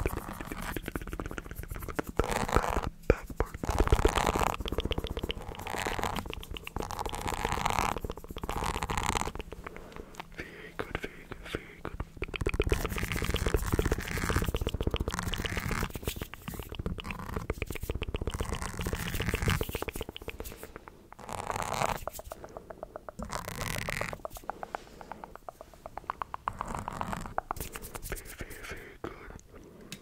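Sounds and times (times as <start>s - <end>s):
mouth clicking and smacking: 0.0s - 30.0s.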